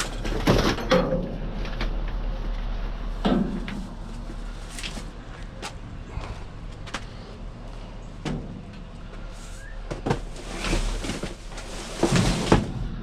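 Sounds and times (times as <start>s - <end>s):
scrap metal knocks and clunks: 0.0s - 2.0s, 9.9s - 13.0s
steady low hum: 0.0s - 13.0s.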